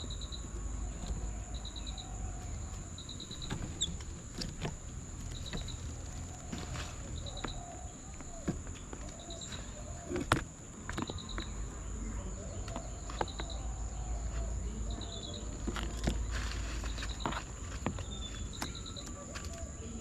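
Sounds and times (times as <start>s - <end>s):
high-pitched insect whine: 0.0s - 8.6s.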